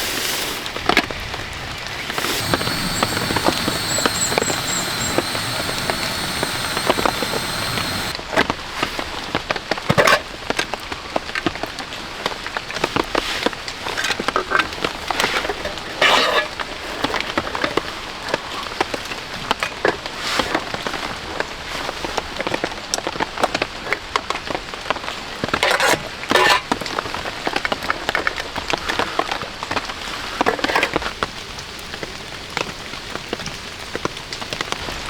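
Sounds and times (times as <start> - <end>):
rain hissing: 1.6 - 8.2
faint high whine: 1.9 - 8.2
high chirps: 2.1 - 8.1.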